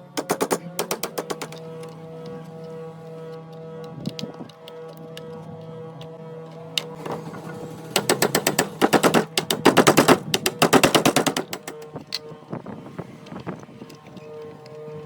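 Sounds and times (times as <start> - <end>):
rapid sharp knocks: 0.0 - 1.6, 7.8 - 12.0.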